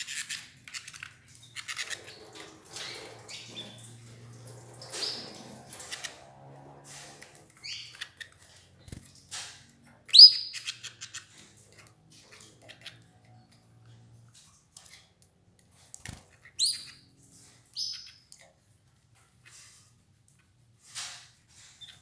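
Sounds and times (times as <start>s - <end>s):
canaries chirping: 0.0s - 14.0s, 16.4s - 18.4s
birds feeding clicking and rustling: 0.0s - 22.0s.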